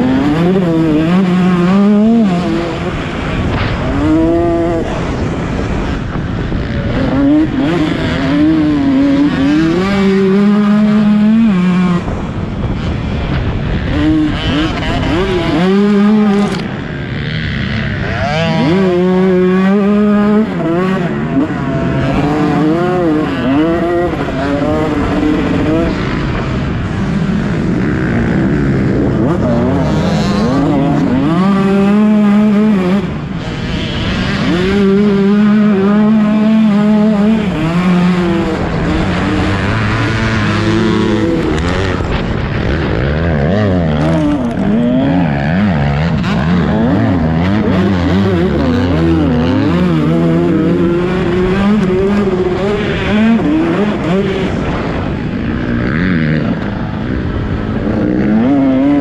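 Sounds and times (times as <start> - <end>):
motocross bike engines revving: 0.0 - 59.0.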